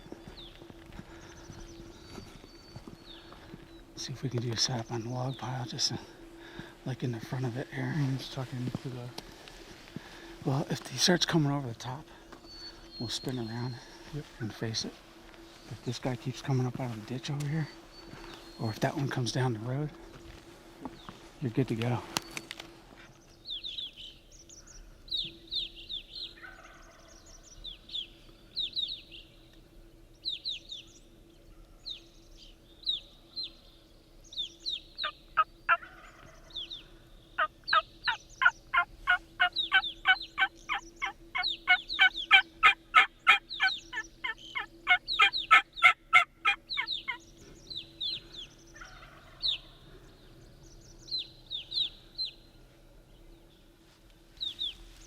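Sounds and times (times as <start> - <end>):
high songbird chirps: 0.0 - 9.1, 10.2 - 19.8, 20.9 - 53.8, 54.4 - 55.0
distant turkey gobbles: 26.3 - 27.1, 35.0 - 50.0
turkey yelps: 35.7 - 36.3, 37.7 - 47.2.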